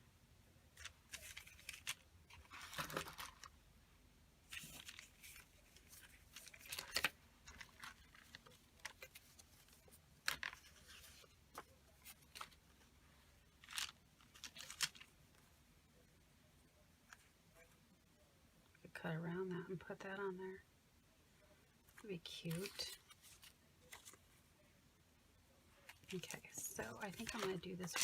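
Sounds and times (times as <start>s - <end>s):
paper rustling and crinkling: 0.8s - 3.5s, 4.5s - 15.4s, 21.9s - 24.4s, 25.8s - 28.0s.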